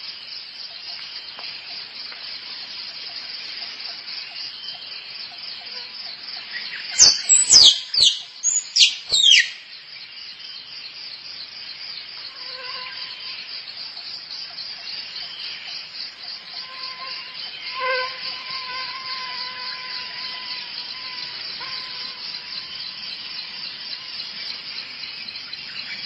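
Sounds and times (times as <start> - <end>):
insects trilling: 0.0 - 26.0
squirrel sharp calls: 7.0 - 9.6.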